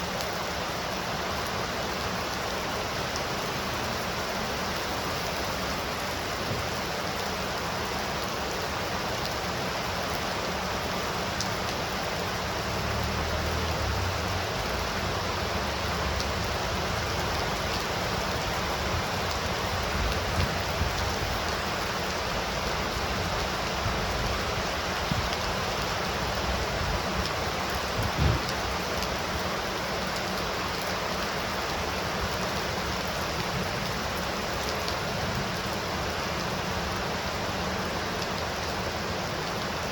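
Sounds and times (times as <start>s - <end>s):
heavy rain: 0.0s - 39.9s
low thumps: 28.0s - 28.5s.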